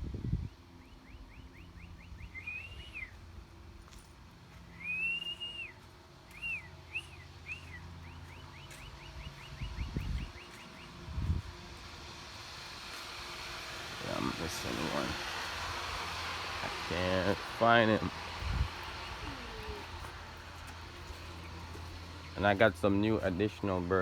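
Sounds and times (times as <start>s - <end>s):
bird whistling song: 0.4s - 3.2s, 4.6s - 11.0s.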